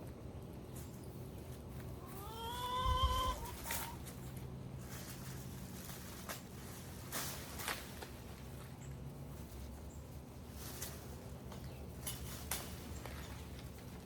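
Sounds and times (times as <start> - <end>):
leaves rustling and crackling: 0.0 - 14.0
drawn-out animal call: 2.0 - 4.2.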